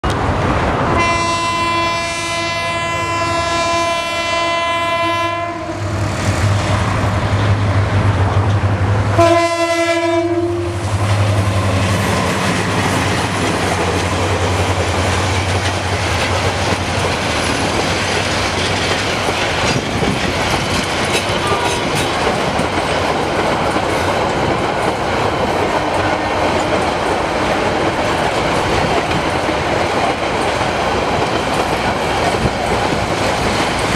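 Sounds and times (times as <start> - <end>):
diesel locomotive drone: 0.0 - 33.9
train coaches rumbling and clacking: 0.0 - 33.9
train horn blasts: 0.9 - 6.1, 9.1 - 11.0, 21.3 - 22.0.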